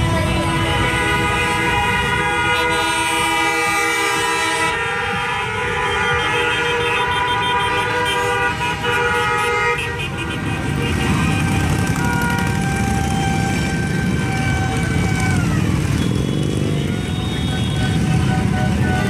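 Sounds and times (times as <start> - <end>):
motorcycle engines running: 0.0 - 19.0
motorcycle horns: 0.0 - 19.0.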